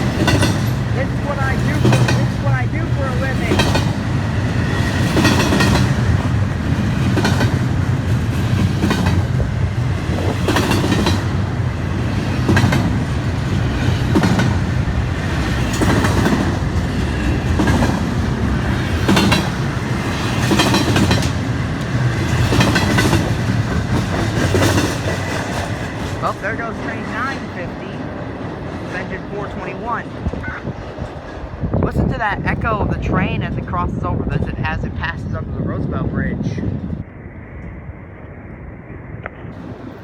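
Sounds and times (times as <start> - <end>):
wheels clacking over rail joints: 0.0 - 31.5
train cars rumbling by: 0.0 - 40.0.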